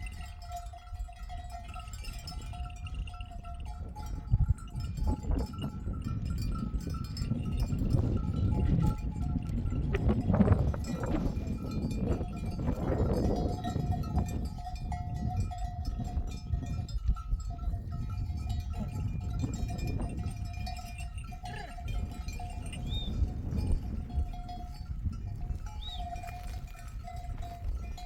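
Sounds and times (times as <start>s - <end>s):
sheep bells ringing: 0.0s - 28.0s
sheep bleating: 21.4s - 21.9s.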